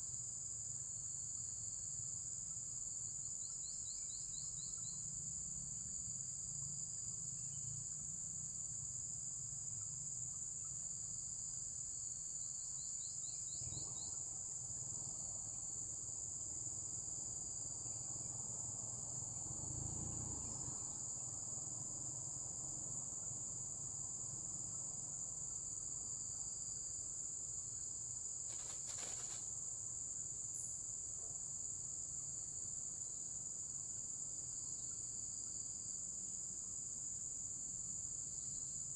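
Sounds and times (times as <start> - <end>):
crickets chirping: 0.0 - 38.9
rustle: 25.6 - 38.8.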